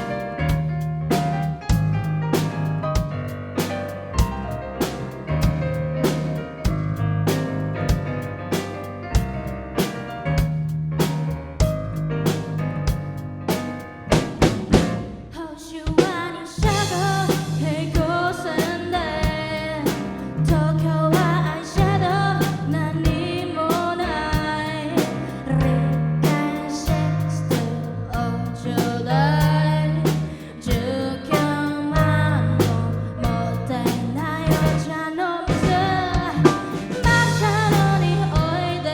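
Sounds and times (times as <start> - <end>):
bass line: 0.0 - 15.4, 16.6 - 38.9
drum kit hits: 0.0 - 23.3, 32.6 - 34.9, 35.5 - 38.9
person singing: 15.4 - 38.9.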